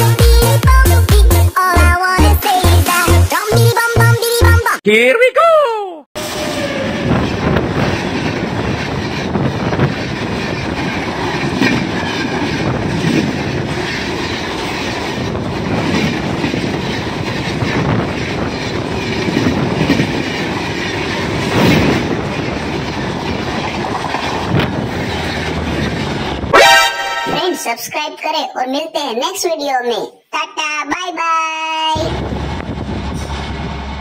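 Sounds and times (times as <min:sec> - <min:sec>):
train wheels clickety-clack: 0:07.2 - 0:26.5.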